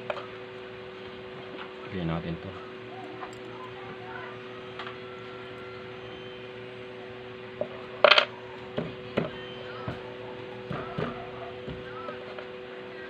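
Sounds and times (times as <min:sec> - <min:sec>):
steady low hum: 0:00.0 - 0:13.0
metal tools clicking and knocking: 0:03.2 - 0:03.8.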